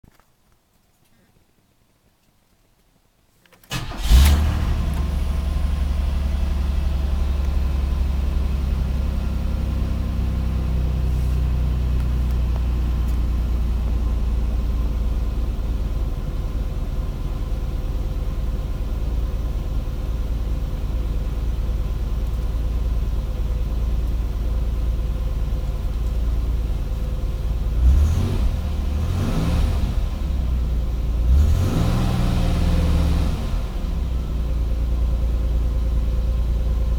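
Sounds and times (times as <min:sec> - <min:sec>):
car engine starting and idling: 0:03.6 - 0:36.9
engine revving: 0:03.7 - 0:10.4, 0:27.7 - 0:30.4, 0:31.2 - 0:34.0.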